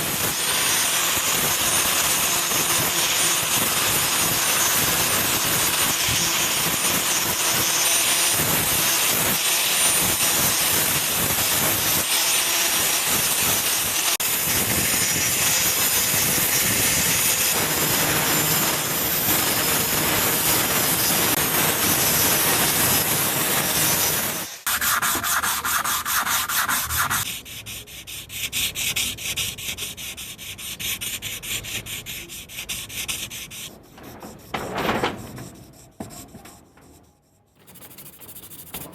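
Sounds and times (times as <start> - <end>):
sanding rasp: 0.0 - 38.9
quick rhythmic rubbing strokes: 23.8 - 38.9.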